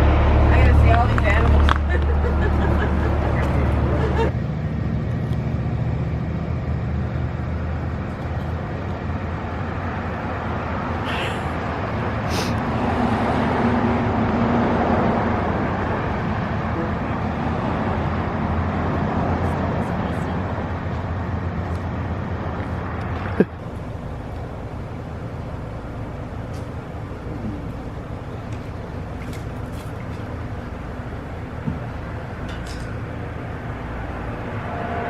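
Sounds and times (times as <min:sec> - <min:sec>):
car engine hum: 0:00.0 - 0:35.0
road noise: 0:00.0 - 0:35.0.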